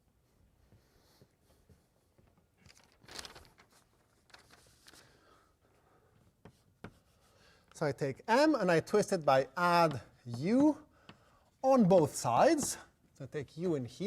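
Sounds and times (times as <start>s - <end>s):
faint chalk scratches: 6.2s - 8.0s.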